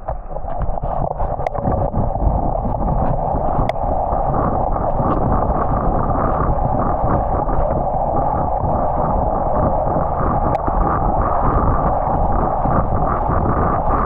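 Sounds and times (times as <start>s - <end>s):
wind rush over microphone: 0.0s - 14.0s.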